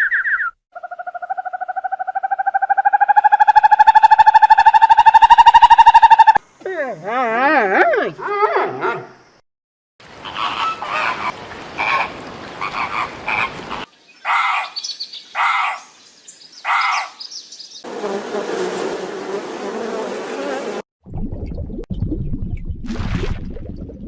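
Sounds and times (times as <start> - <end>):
frogs croaking: 10.1 - 16.0.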